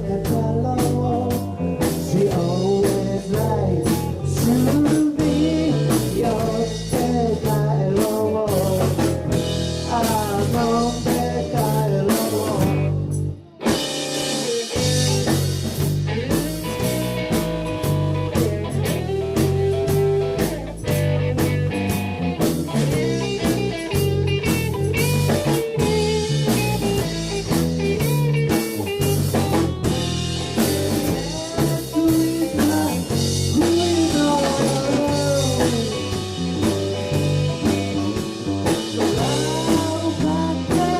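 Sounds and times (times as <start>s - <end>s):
blues-rock band playing: 0.0s - 40.9s.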